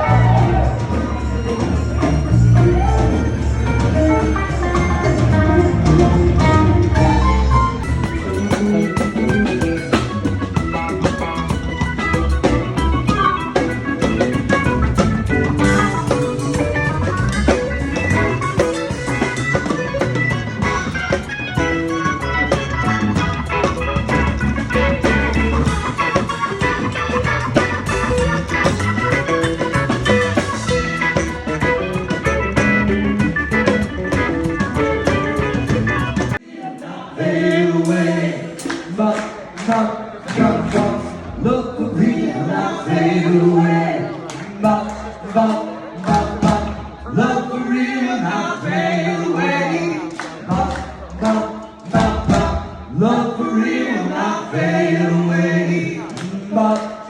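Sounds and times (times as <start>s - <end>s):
drum kit beat: 0.0s - 36.4s, 50.1s - 53.0s
electric guitar: 0.0s - 36.4s
organ: 0.0s - 36.4s
rock band playing: 0.0s - 36.4s, 42.9s - 53.8s
voices singing in harmony: 36.4s - 57.0s.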